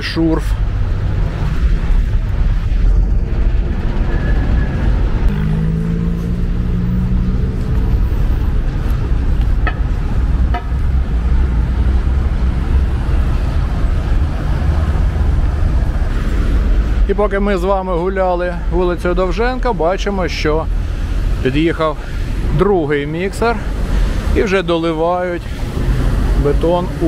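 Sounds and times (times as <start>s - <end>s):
road traffic rumble: 0.0s - 27.0s
vehicle engine rising: 0.6s - 17.1s.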